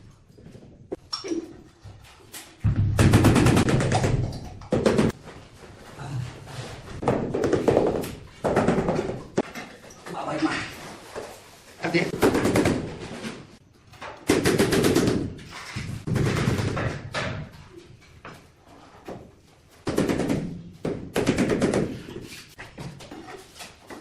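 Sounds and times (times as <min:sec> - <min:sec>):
fast rattling knocks on tile: 0:03.0 - 0:05.2, 0:07.0 - 0:09.5, 0:12.2 - 0:13.0, 0:14.3 - 0:17.4, 0:19.8 - 0:22.2.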